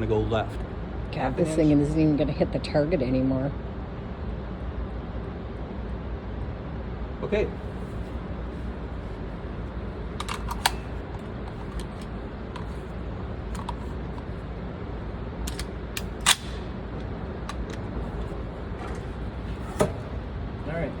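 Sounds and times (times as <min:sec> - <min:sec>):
low background hum: 0:00.0 - 0:21.0
rifle handling clicks and knocks: 0:10.2 - 0:12.8, 0:13.5 - 0:14.3, 0:15.5 - 0:16.6, 0:17.4 - 0:19.0.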